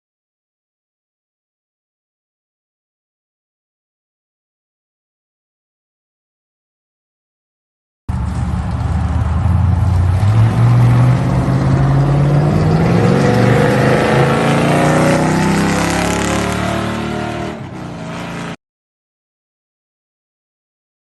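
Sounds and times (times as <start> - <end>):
car engine accelerating: 8.1 - 18.6.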